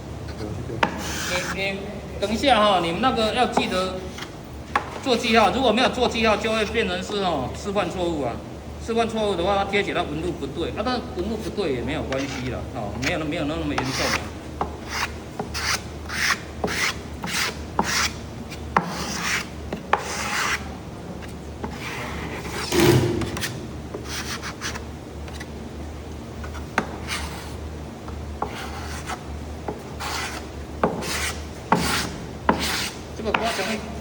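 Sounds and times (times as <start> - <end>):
scraper spreading glue on wood: 0.8 - 1.6, 13.7 - 20.7, 28.4 - 33.8.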